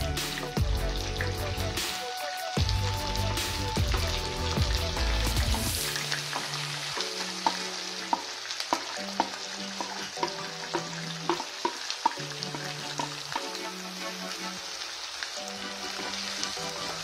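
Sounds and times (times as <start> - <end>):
chicken sizzling in hot oil: 0.0 - 17.0
sharp taps and spatters: 5.3 - 13.5.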